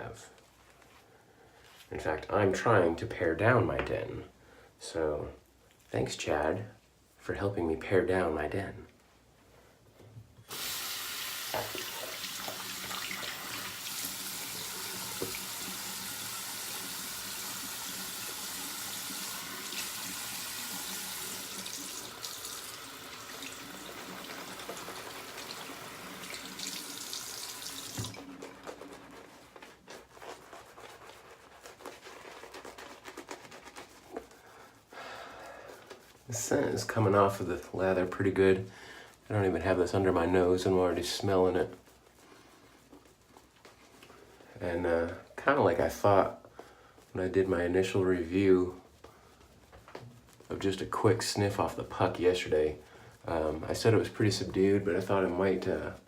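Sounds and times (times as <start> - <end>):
tap running into sink: 11.4 - 14.0, 14.9 - 15.7, 21.5 - 28.3.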